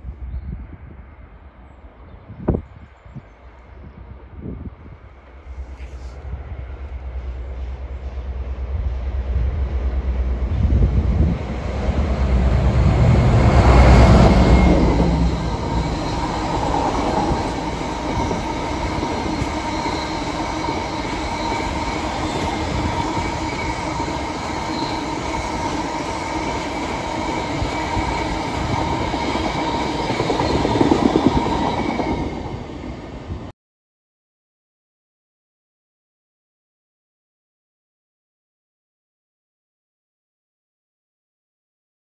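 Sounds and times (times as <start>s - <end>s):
diesel locomotive passing: 0.0s - 33.5s
freight wagons rumbling past: 9.4s - 32.6s.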